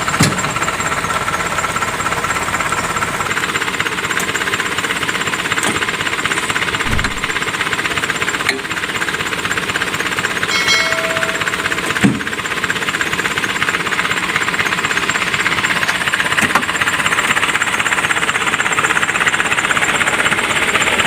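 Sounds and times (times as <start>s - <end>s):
vehicle engine knocking steadily: 0.0s - 21.0s
low thud: 6.7s - 7.5s.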